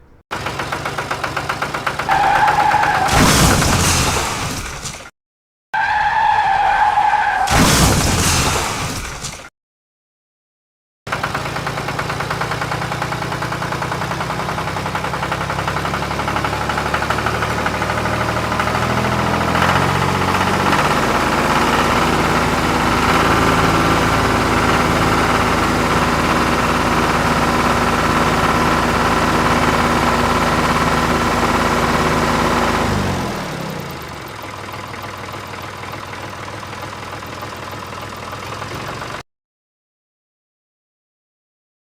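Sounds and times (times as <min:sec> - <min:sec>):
tractor engine running: 0:00.0 - 0:05.1, 0:11.1 - 0:39.2.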